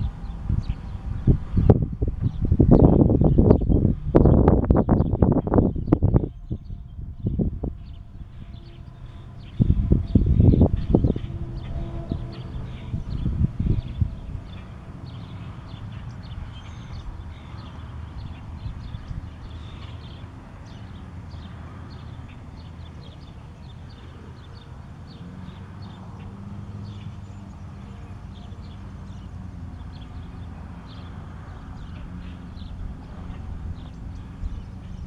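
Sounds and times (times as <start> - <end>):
low rumble: 0.0 - 21.8
small birds chirping: 0.0 - 35.0.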